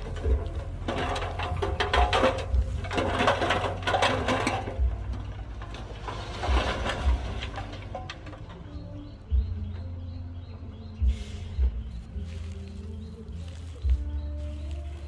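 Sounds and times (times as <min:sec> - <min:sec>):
metallic clanking and rattling: 0:00.0 - 0:11.7
diesel engine drone: 0:00.0 - 0:15.0.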